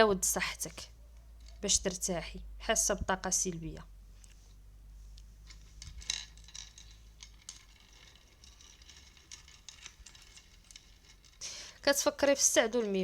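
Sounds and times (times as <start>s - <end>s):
small objects clicking and tapping: 5.4s - 13.0s.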